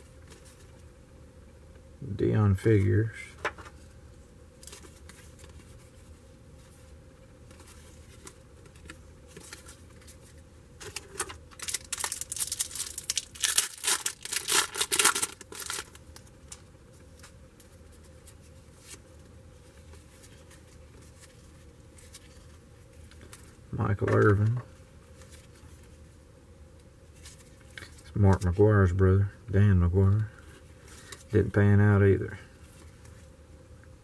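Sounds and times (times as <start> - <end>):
card pack wrapper tearing: 10.8 - 16.0.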